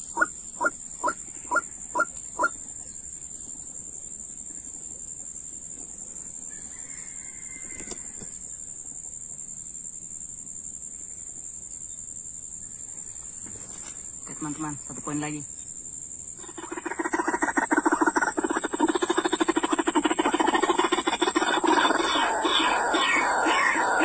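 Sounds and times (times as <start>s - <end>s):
bird clucking call: 0.0s - 2.6s, 16.4s - 24.0s
high-pitched insect drone: 0.0s - 5.5s, 6.1s - 24.0s.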